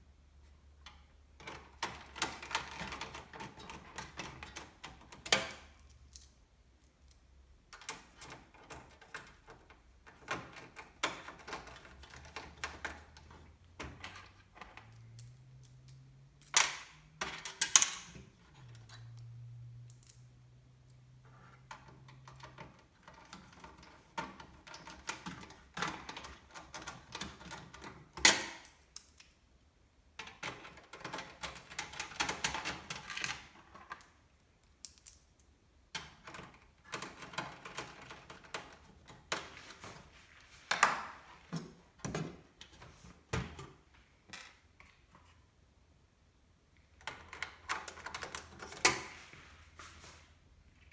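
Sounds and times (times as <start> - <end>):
computer parts clicking and rattling: 0.9 - 6.3, 7.7 - 19.2, 20.9 - 29.0, 30.2 - 34.2, 35.9 - 45.0, 46.9 - 49.2.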